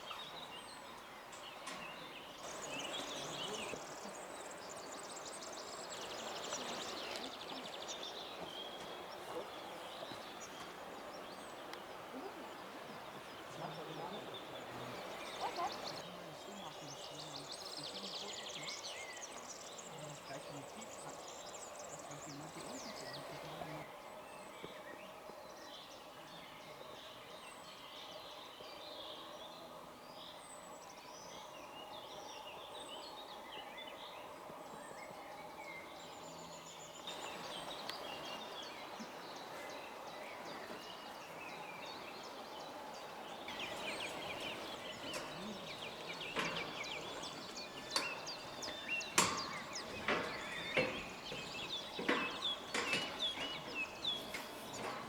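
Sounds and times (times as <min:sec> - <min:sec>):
small birds chirping: 0:00.0 - 0:55.0
sharp knocks and clicks: 0:46.4 - 0:55.0.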